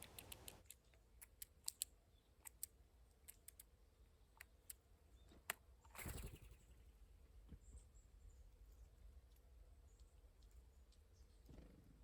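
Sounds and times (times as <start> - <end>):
bird bill clicking on seeds: 0.0 - 3.7.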